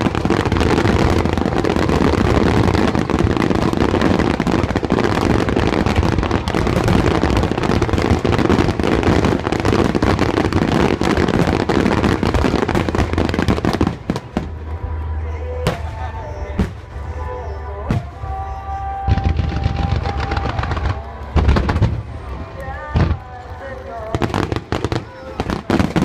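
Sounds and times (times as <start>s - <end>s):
fireworks bursting: 0.0s - 26.0s.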